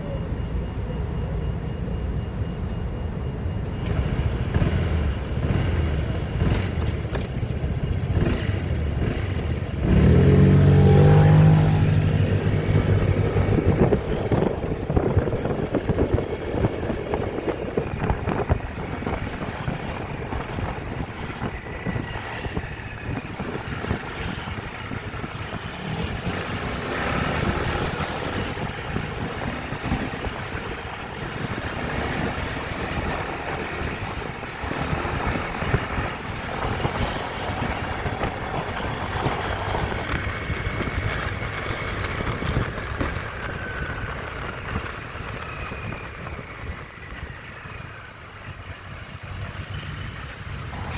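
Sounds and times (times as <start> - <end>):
road noise: 0.0 - 50.9
motorcycle engine: 3.8 - 50.9
engine revving loudly: 8.1 - 13.6.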